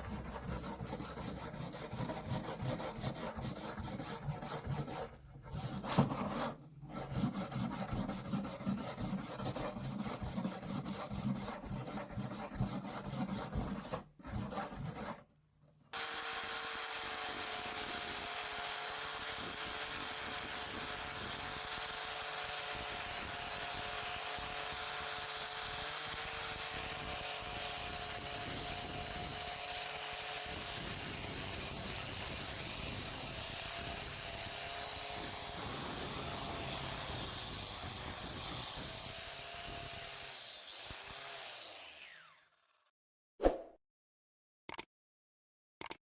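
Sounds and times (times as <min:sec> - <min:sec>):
electric power tool running: 0:16.0 - 0:29.5, 0:30.4 - 0:42.7.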